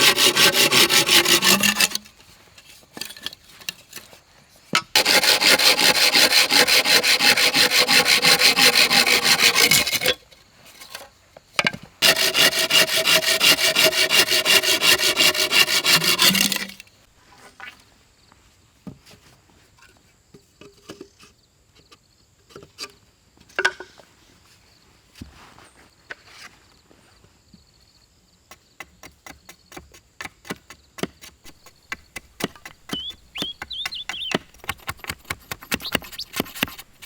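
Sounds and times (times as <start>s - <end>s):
hand tool rasping on wood: 0.0s - 2.0s, 5.0s - 10.2s, 12.0s - 16.8s, 31.4s - 37.0s.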